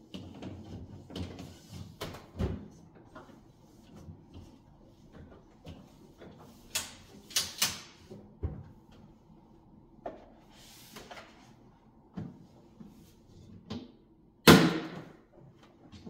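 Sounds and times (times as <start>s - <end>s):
knocks and clunks on shelves: 0.0s - 9.2s, 12.1s - 16.0s
cloth wiping shelves: 2.7s - 7.3s, 10.3s - 13.6s.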